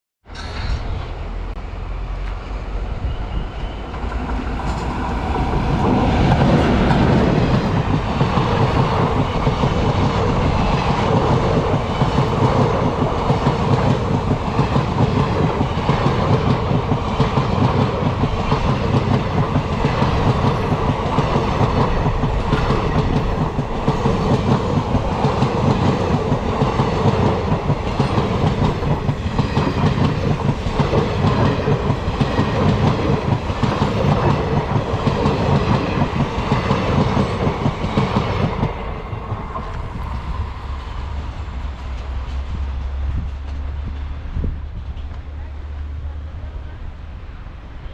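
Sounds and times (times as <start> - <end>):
train wheels clattering over rail joints: 4.0 - 40.3.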